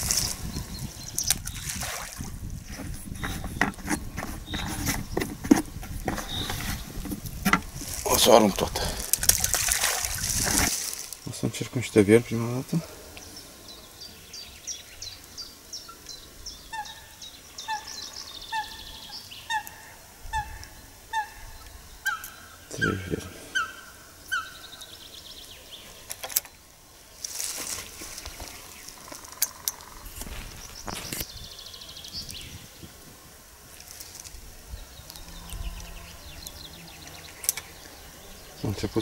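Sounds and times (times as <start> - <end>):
small birds high chirps: 0.0 - 5.3, 13.1 - 26.6, 28.1 - 33.0, 33.9 - 39.0.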